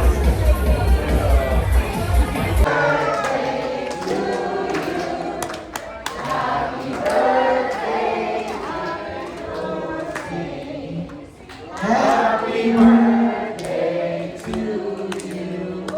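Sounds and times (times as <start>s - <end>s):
bass-heavy dance music: 0.0s - 2.7s
group of voices singing: 0.0s - 15.9s.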